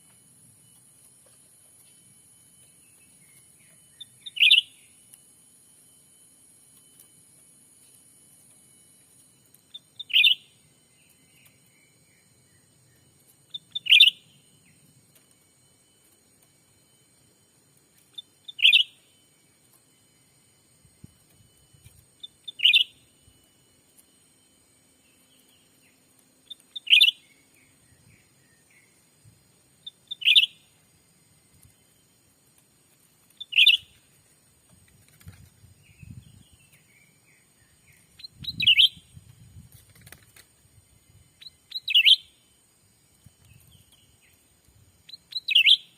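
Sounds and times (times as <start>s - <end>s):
soft bird chirps: 0.0s - 5.3s, 6.7s - 34.4s, 35.0s - 40.2s, 40.8s - 45.9s
thin steady high whine: 0.0s - 45.9s
bird call with pips and note bursts: 2.8s - 5.0s, 9.7s - 14.8s, 18.1s - 19.3s, 21.8s - 23.4s, 24.9s - 29.0s, 29.8s - 30.7s, 33.4s - 34.0s, 35.8s - 39.1s, 41.4s - 42.5s, 45.1s - 45.9s
bird chattering calls: 4.0s - 4.8s, 18.2s - 19.0s, 22.2s - 23.0s, 33.4s - 34.0s.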